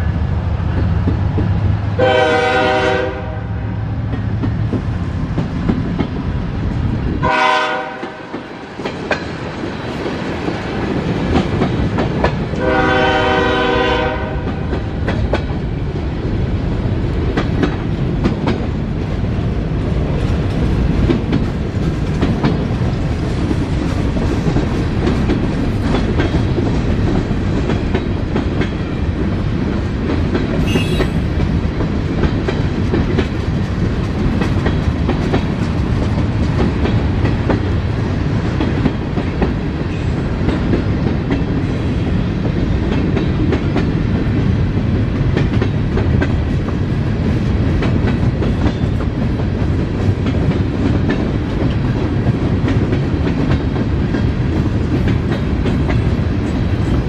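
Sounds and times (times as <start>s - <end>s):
train rumbling past: 0.0s - 57.0s
train horn blasts: 2.0s - 3.7s, 7.2s - 8.4s, 12.6s - 14.6s, 30.6s - 31.4s.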